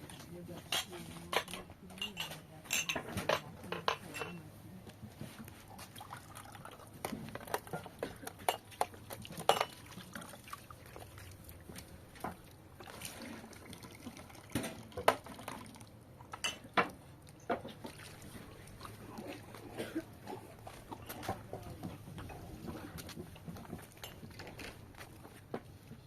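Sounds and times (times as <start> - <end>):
kitchen clicks and knocks: 0.6 - 4.4
wet liquid handling: 4.9 - 26.0.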